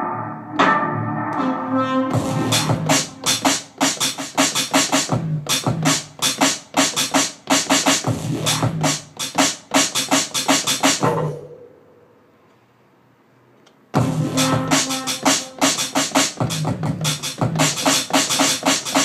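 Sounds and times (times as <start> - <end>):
bass line: 0.0 - 3.4, 8.1 - 9.0, 14.0 - 15.4
electronic chopped beat: 0.6 - 11.5, 14.0 - 19.0.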